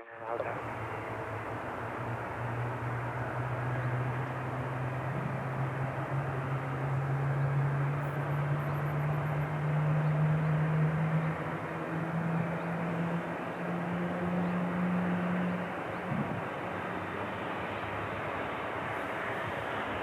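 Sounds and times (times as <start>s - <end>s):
jet engines powering up: 0.3s - 10.2s.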